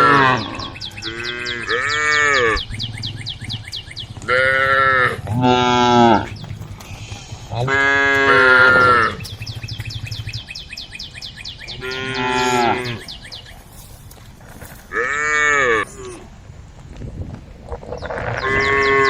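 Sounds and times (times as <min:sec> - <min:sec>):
cows mooing: 0:00.0 - 0:10.2, 0:11.7 - 0:13.1, 0:14.9 - 0:16.2, 0:18.0 - 0:19.0.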